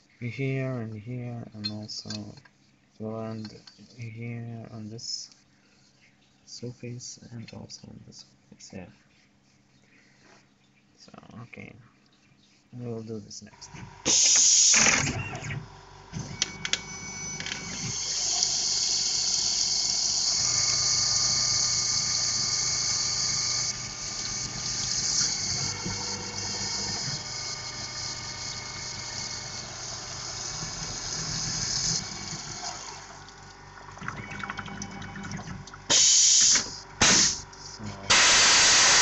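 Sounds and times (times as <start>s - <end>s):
hissing spray: 35.9s - 39.0s.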